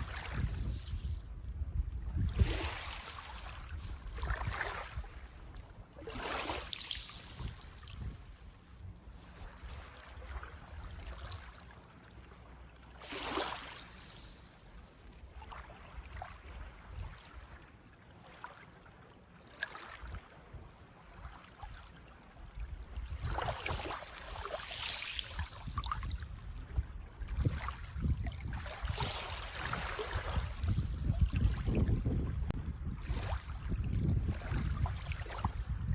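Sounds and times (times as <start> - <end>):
waves washing on sandy beach: 23.2 - 32.0.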